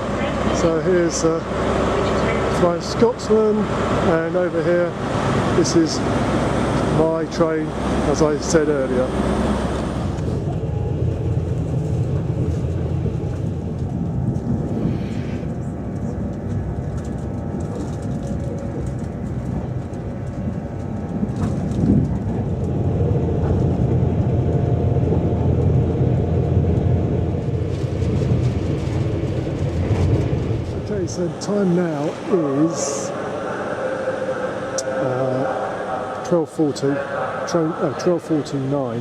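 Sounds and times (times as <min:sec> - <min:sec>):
train rumbling: 0:00.0 - 0:39.0
faint whining tones: 0:30.0 - 0:39.0.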